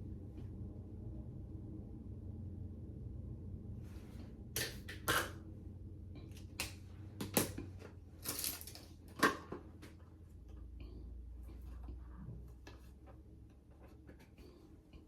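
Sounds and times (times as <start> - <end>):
low steady hum: 0.0 - 15.0
small objects clicking and tapping: 6.3 - 9.4.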